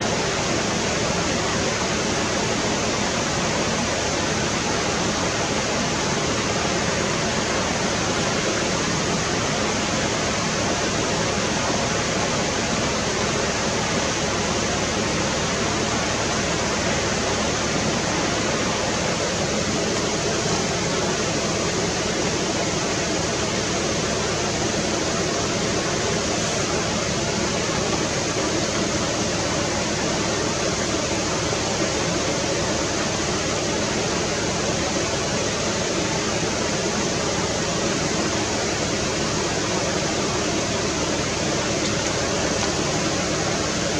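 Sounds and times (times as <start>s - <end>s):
rushing river water: 0.0s - 43.9s.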